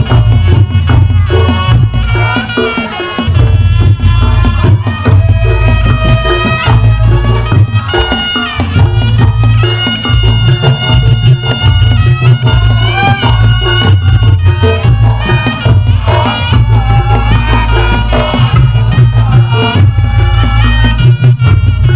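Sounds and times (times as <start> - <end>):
heavy bass: 0.0 - 21.9
loud drums: 0.0 - 21.9
reedy shawm melody: 0.0 - 21.9.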